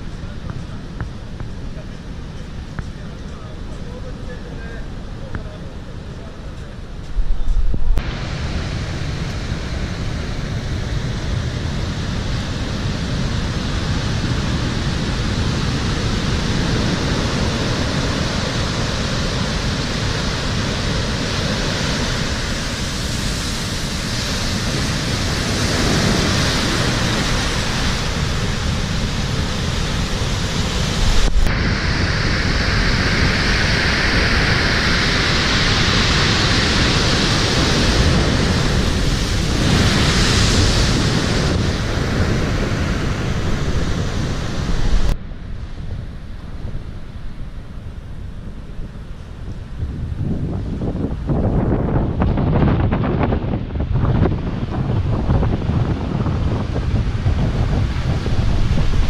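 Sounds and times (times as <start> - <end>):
wind on microphone: 0.0 - 59.0
waves breaking: 7.9 - 50.1, 54.7 - 59.0.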